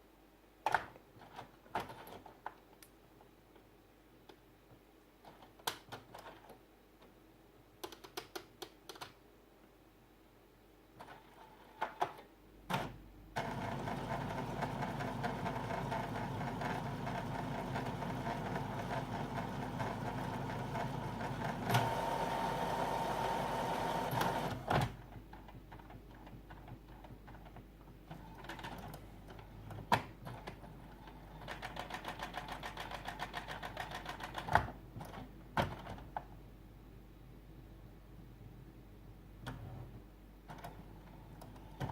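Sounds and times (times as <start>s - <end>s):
printer clicks: 12.7s - 25.0s
printer mechanism whirring: 12.7s - 25.0s.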